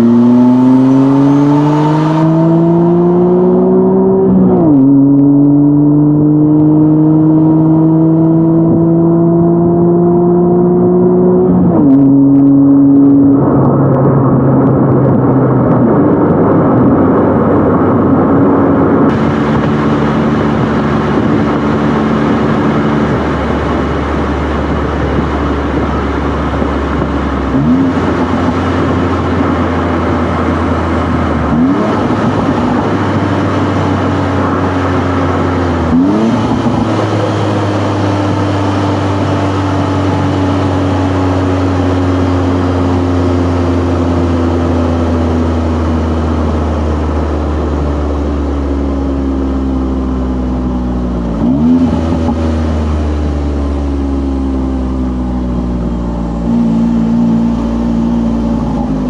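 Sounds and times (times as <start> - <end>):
car engine revving on downshifts: 0.0 - 59.0
low road rumble: 0.0 - 59.0.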